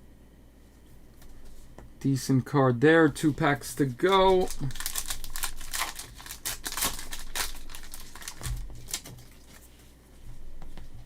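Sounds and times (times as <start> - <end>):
wrapper crinkling and tearing: 4.0 - 9.7.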